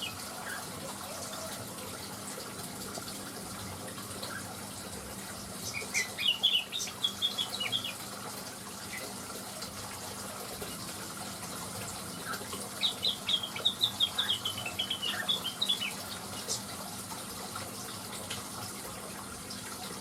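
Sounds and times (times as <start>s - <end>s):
bird chirping: 5.6s - 8.0s, 12.3s - 16.6s.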